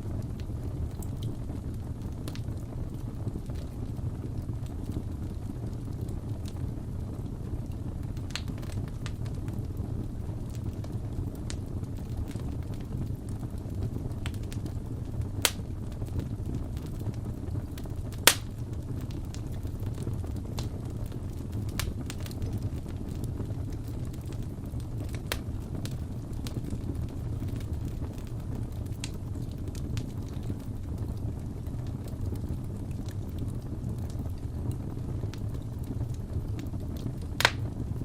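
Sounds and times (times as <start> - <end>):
low rumble of flames: 0.0 - 38.0
wood fire crackling: 0.0 - 38.0
sharp pops and snaps: 18.2 - 18.6, 37.4 - 37.7.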